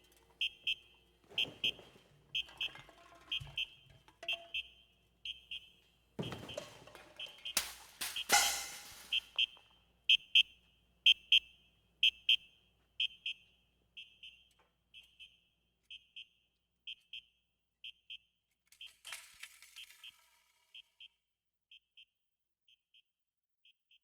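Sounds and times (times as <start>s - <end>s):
electronic alarm beeping: 0.4s - 19.0s.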